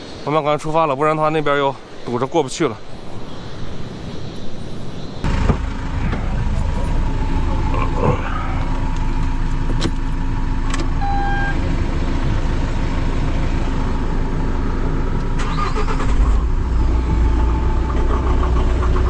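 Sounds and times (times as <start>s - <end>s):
vehicle engine idling: 5.2s - 19.0s
short electronic beep: 11.0s - 11.6s.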